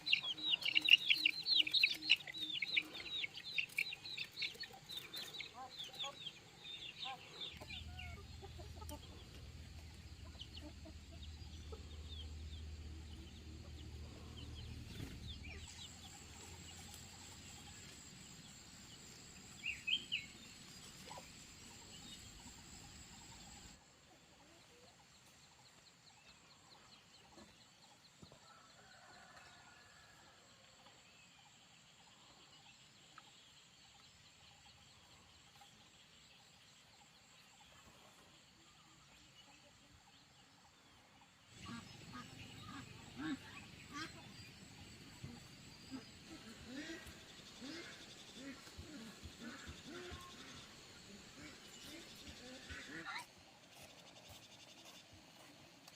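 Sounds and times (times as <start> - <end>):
chickens clucking: 0.0 - 18.0, 41.6 - 53.9.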